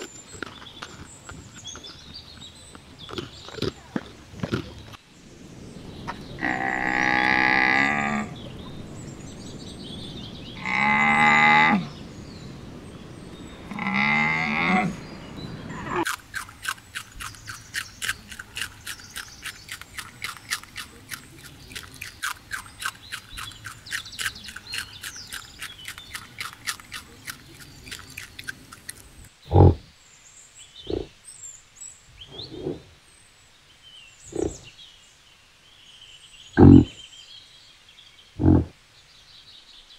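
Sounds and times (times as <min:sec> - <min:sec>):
bison grunts: 0:06.4 - 0:08.6, 0:29.5 - 0:29.9, 0:30.8 - 0:31.1, 0:32.2 - 0:32.9, 0:34.3 - 0:34.7, 0:36.6 - 0:37.0, 0:38.4 - 0:38.7
rabbit chewing: 0:16.0 - 0:29.3
camel calls: 0:36.6 - 0:37.0, 0:38.4 - 0:38.7.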